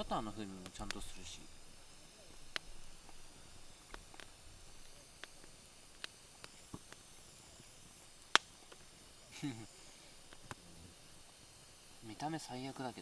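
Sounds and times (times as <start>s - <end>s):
campfire wood crackling: 0.0s - 13.0s
faint steady hiss: 0.0s - 13.0s
loud sharp snap: 8.3s - 8.8s.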